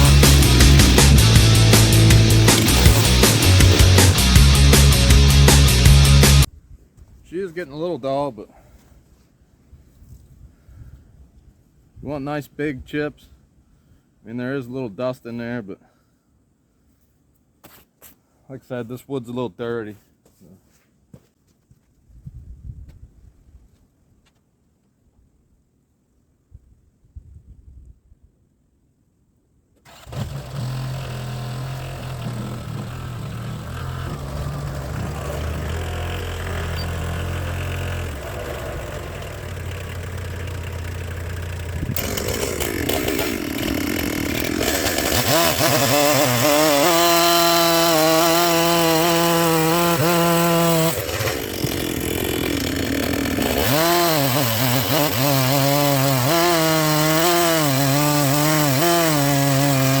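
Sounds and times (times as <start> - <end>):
chainsaw cutting log: 0.0 - 6.5, 29.8 - 60.0.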